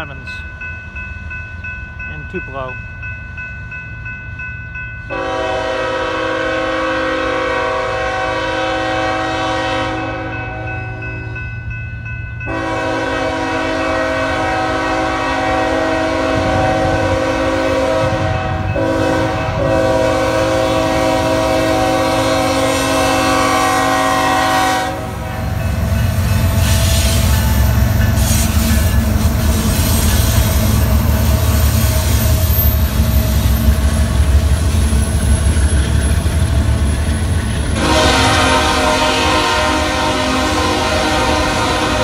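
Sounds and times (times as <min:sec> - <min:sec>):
locomotive engines and wheels rumbling: 0:00.0 - 0:42.0
train air horn chord: 0:05.1 - 0:11.1, 0:12.5 - 0:25.6, 0:37.8 - 0:42.0.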